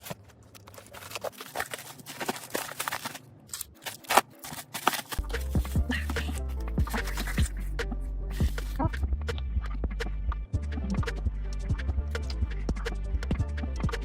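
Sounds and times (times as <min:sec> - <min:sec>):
music with deep bass: 0:05.2 - 0:14.0.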